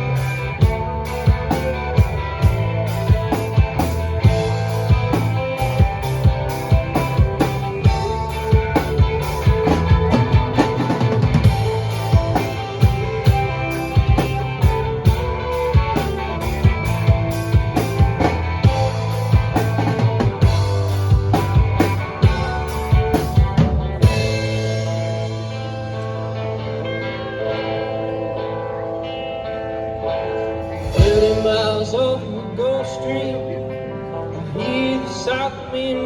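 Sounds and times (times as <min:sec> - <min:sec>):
drum kit beat: 0:00.0 - 0:25.7, 0:30.7 - 0:32.3
bass line: 0:00.0 - 0:34.5
guitar: 0:00.0 - 0:36.0.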